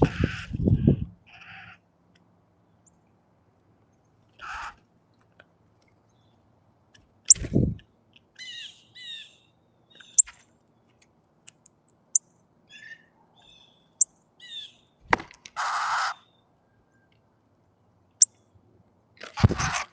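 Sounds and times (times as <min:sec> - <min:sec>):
baby bird chirping: 0:09.9 - 0:10.3.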